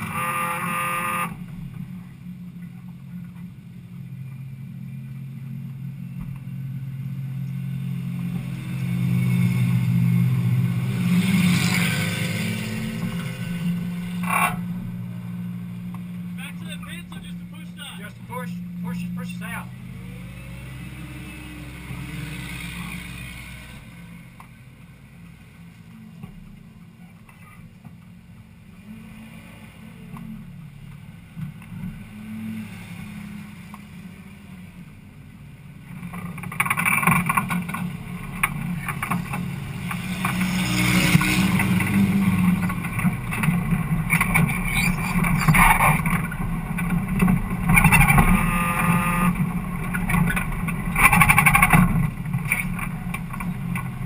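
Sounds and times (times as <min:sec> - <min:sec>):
race car engine idling and revving: 0:00.0 - 0:54.0.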